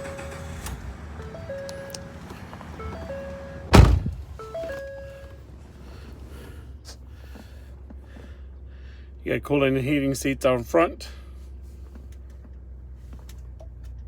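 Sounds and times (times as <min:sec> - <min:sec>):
truck door shutting: 0:00.0 - 0:05.0
electronic warning chime: 0:01.2 - 0:02.2, 0:02.8 - 0:03.7, 0:04.4 - 0:05.4.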